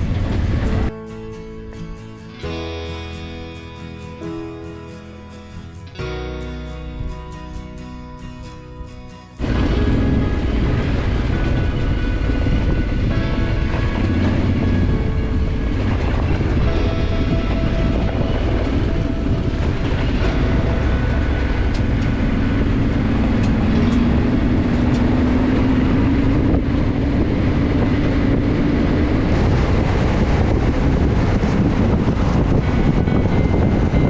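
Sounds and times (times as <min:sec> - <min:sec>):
motorcycle engine running: 0:00.0 - 0:00.9
heavy wind: 0:00.0 - 0:34.0
road rumble: 0:00.0 - 0:34.0.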